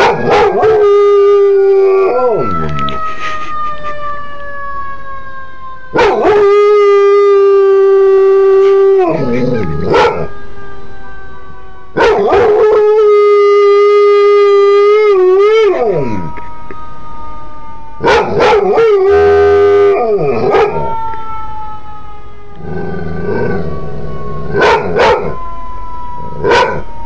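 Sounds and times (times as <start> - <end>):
dog howling: 6.0 - 10.3, 14.8 - 16.4, 18.0 - 21.0, 22.6 - 25.4
dog yelping: 24.6 - 25.3.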